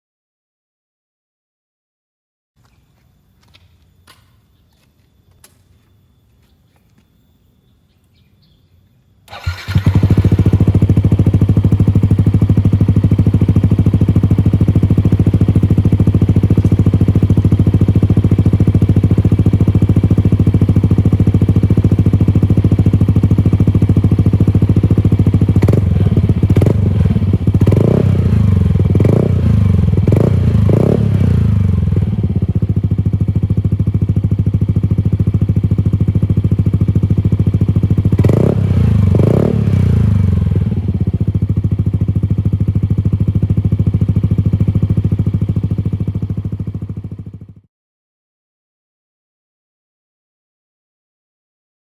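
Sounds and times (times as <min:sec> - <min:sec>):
engine revving throttle blips: 0:09.3 - 0:32.8, 0:38.0 - 0:41.2
scooter engine idling: 0:09.3 - 0:47.6.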